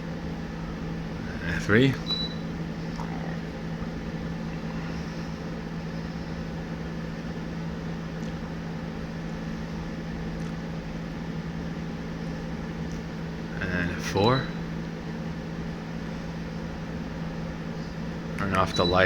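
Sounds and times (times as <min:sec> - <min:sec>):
ceiling fan whirring: 0:00.0 - 0:19.0
fan motor low hum: 0:00.0 - 0:19.0.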